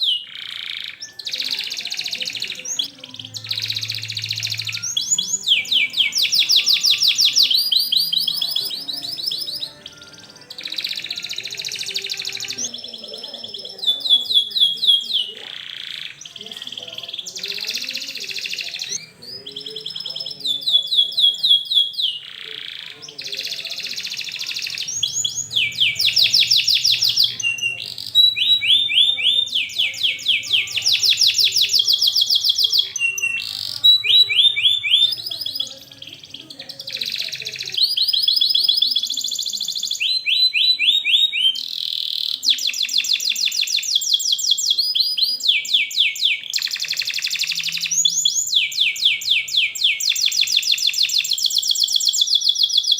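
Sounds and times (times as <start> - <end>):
canary singing trills: 0.0 - 52.9.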